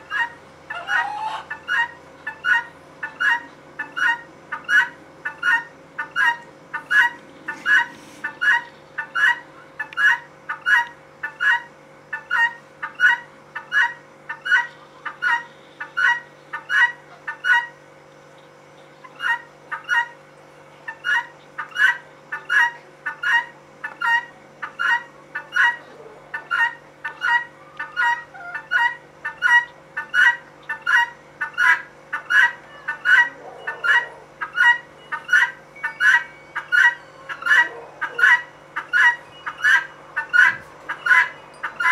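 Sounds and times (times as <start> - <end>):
guinea fowl two-note call: 26.5 - 41.9.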